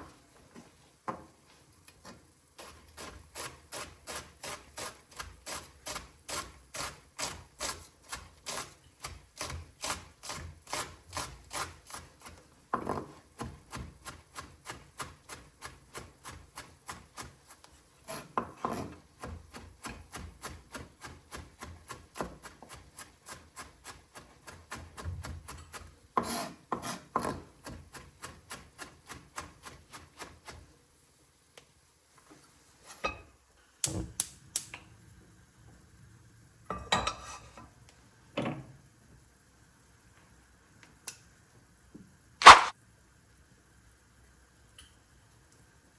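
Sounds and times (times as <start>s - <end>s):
knife scraping: 18.1s - 19.0s, 25.6s - 27.4s, 42.4s - 42.7s
knife chopping on cutting board: 18.1s - 22.8s, 42.4s - 42.7s.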